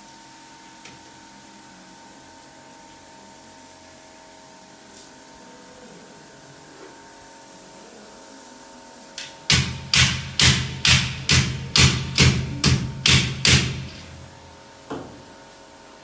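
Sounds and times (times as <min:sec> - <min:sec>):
hammer blows: 0:09.2 - 0:14.4.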